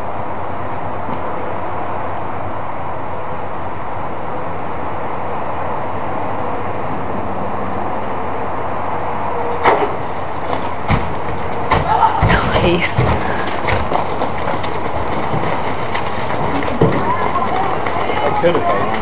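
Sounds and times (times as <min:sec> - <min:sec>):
steady rushing noise: 0:00.0 - 0:19.0
sharp knocks: 0:09.6 - 0:19.0.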